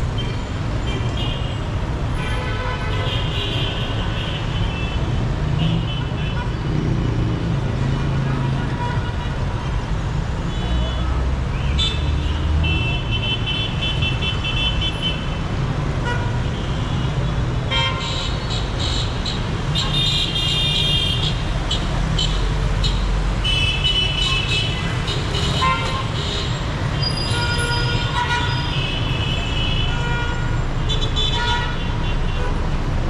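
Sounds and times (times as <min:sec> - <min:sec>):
car horns honking: 0:17.7 - 0:32.4.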